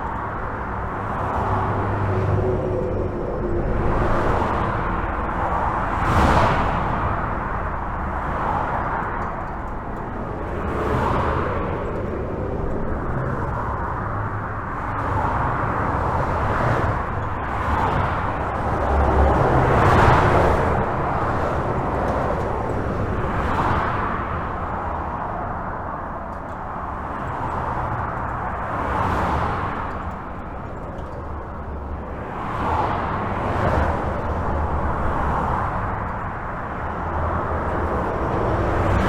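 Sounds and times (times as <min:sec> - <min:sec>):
highway traffic tyre noise: 0:00.0 - 0:39.0
vehicles passing: 0:00.0 - 0:39.0.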